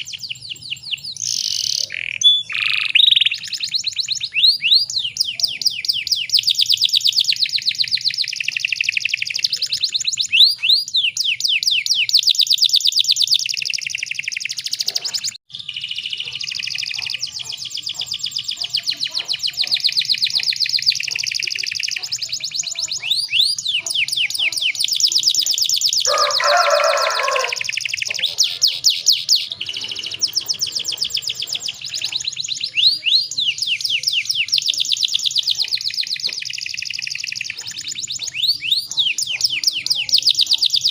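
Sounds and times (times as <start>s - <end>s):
canary singing trills: 0.0s - 40.9s
low rough canary call: 26.0s - 34.5s.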